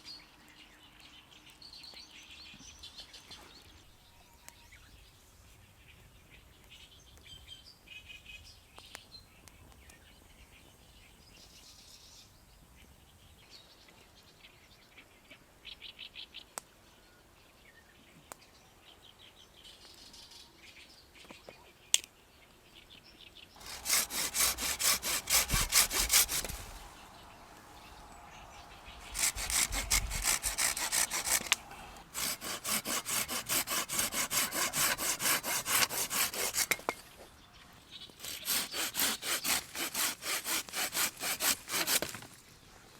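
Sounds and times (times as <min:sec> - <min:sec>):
faint birdsong: 0:00.0 - 0:42.9
hand saw cutting wood: 0:23.6 - 0:37.0, 0:38.2 - 0:42.4.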